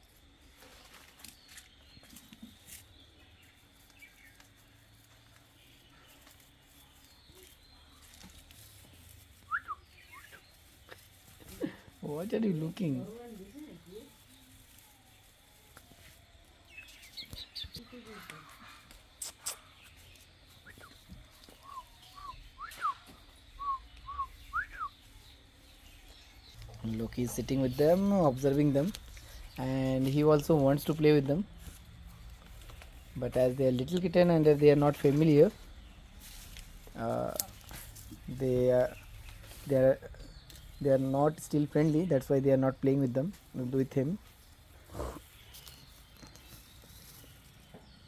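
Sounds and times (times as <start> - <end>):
faint rustles: 0.0 - 42.3, 43.3 - 48.0
person whistling notes: 21.7 - 23.0, 23.6 - 24.9.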